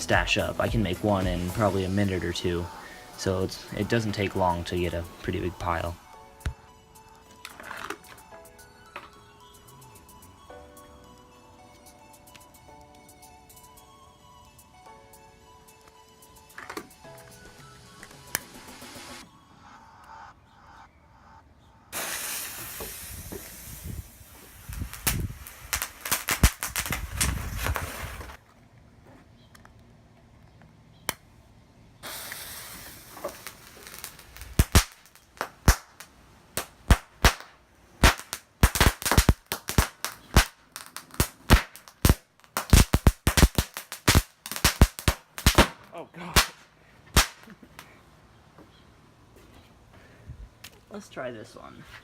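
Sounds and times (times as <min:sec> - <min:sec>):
firecracker rushing hiss: 0:00.0 - 0:05.3, 0:18.2 - 0:19.2, 0:21.9 - 0:28.4, 0:32.0 - 0:35.3
sharp crackling pops: 0:00.0 - 0:06.6, 0:21.9 - 0:28.4, 0:32.0 - 0:48.0.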